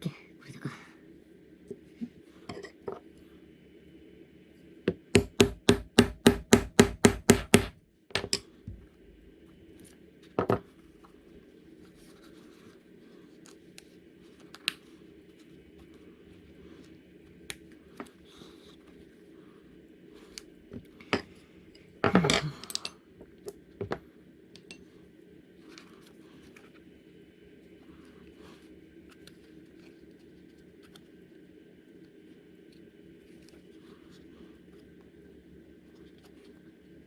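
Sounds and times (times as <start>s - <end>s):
mallet striking leather tool: 4.9s - 7.8s.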